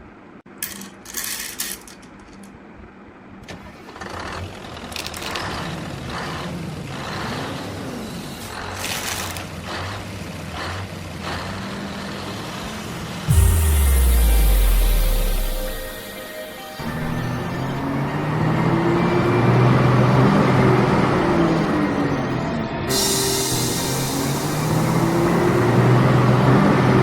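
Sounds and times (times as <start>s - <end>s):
truck engine starting and revving: 3.6s - 16.0s, 16.8s - 27.0s
air hissing: 22.9s - 26.1s.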